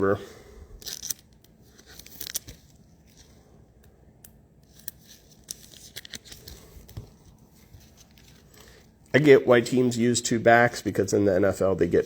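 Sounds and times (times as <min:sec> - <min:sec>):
trading cards rustling: 0:00.8 - 0:03.4, 0:04.6 - 0:09.0.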